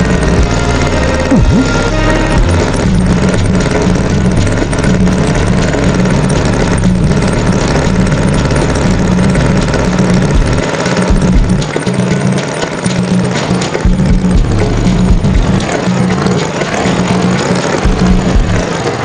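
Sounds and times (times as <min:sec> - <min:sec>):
cartoon tractor engine: 0:00.0 - 0:19.0.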